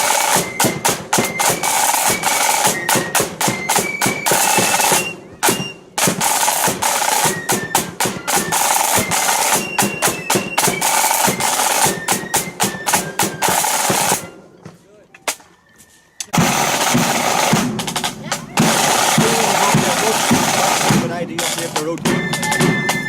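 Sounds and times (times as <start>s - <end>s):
snare drum rolls: 0.0s - 14.4s, 16.3s - 23.0s.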